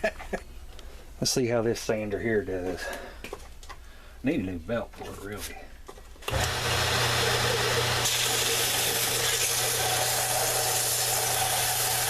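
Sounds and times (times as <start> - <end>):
belt sander motor hum: 6.3 - 12.0.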